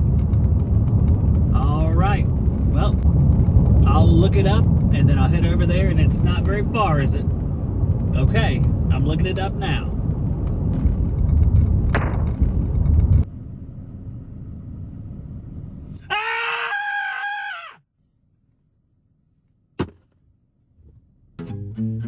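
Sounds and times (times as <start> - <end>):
low vehicle rumble: 0.0 - 22.0
person screaming in frustration: 16.1 - 17.8
guitar music: 21.4 - 22.0.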